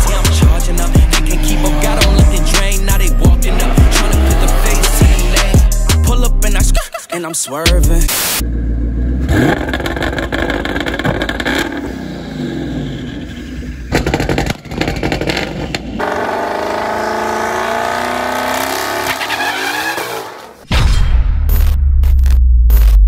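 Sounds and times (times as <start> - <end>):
high engine note: 0.0 - 6.6
exhaust pops and crackles: 9.4 - 11.8, 13.9 - 16.0.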